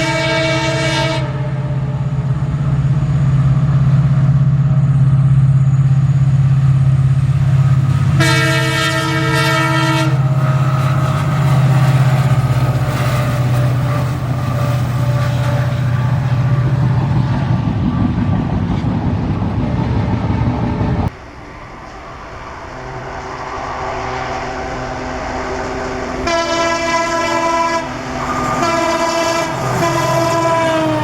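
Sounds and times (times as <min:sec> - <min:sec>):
locomotive horn blast: 0:00.0 - 0:02.2, 0:08.0 - 0:17.6, 0:22.7 - 0:31.0
diesel locomotive engine drone: 0:00.0 - 0:31.0.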